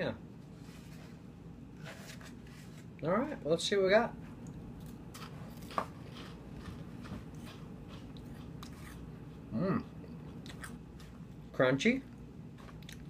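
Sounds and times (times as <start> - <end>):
man chewing crunchy snack: 5.1 - 11.3, 12.6 - 13.0.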